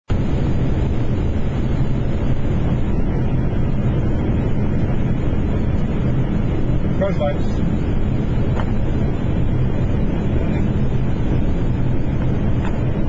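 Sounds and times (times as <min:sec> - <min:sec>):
cockpit airflow and engine rush: 0:00.0 - 0:13.0.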